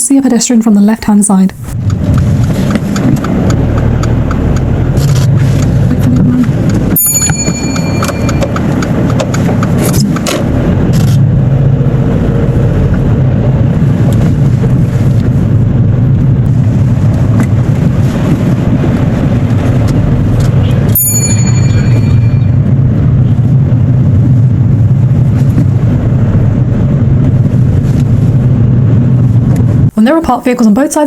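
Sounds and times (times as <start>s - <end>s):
car engine and road drone: 1.5s - 30.0s
brief high ringing tone: 7.0s - 8.6s, 21.0s - 22.6s.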